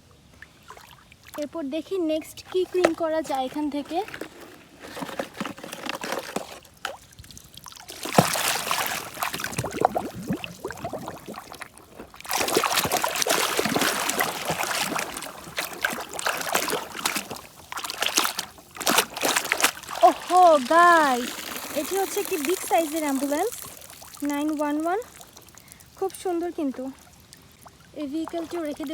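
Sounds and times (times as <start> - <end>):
water pouring and splashing: 0.4 - 28.9
handling knocks and clicks: 2.2 - 6.6.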